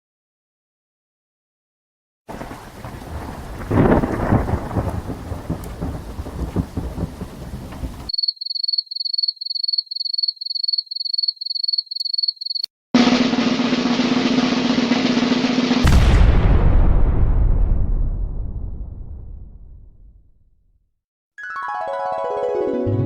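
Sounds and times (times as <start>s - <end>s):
rain: 2.3s - 8.1s
thunder rumble: 2.3s - 8.1s, 13.0s - 20.2s.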